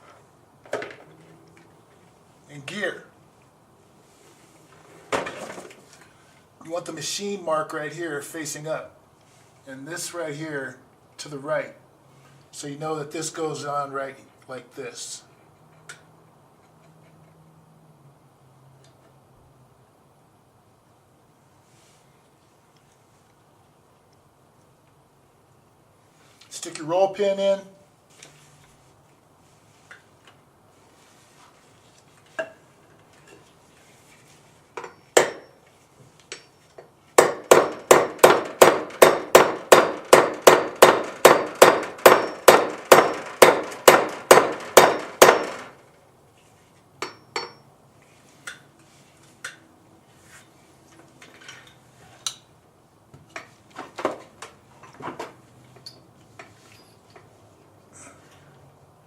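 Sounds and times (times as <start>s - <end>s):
hammer striking metal pin: 34.8s - 35.6s, 37.2s - 45.7s, 47.0s - 47.6s
metal parts tapping and clinking: 55.7s - 57.3s.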